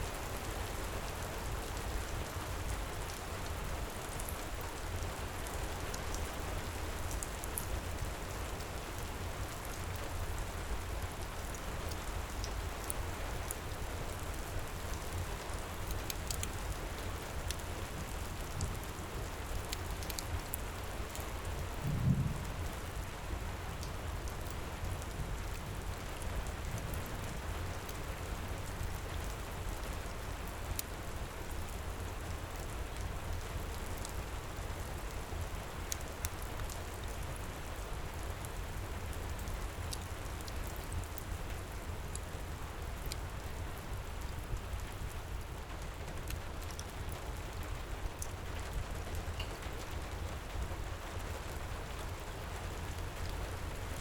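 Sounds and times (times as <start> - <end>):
heavy rain: 0.0 - 54.0
wood fire crackling: 2.2 - 54.0
low thump: 21.8 - 22.6
low rumble: 21.8 - 22.8.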